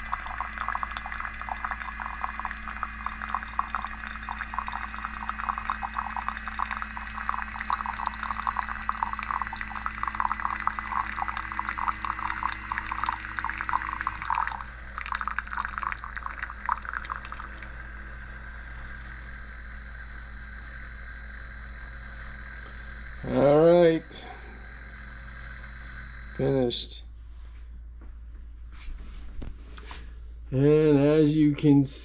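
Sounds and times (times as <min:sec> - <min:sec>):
kettle water bubbling and crackling: 0:00.0 - 0:18.2
kettle low hum: 0:00.0 - 0:24.8.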